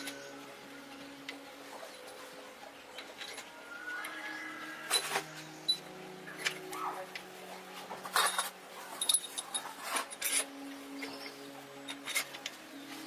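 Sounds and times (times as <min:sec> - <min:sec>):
clinks and knocks: 0:07.9 - 0:12.6.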